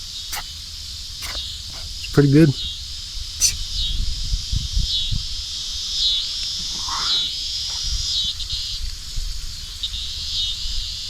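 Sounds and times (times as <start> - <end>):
night insects chorus: 0.0 - 11.0
short repeating trills: 1.2 - 2.2.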